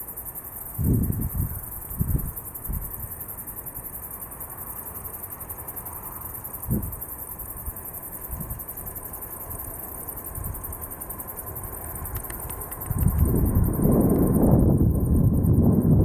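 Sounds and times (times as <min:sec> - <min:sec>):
insects trilling: 0:00.0 - 0:16.0
wind buffeting microphone: 0:00.8 - 0:03.0, 0:12.0 - 0:16.0.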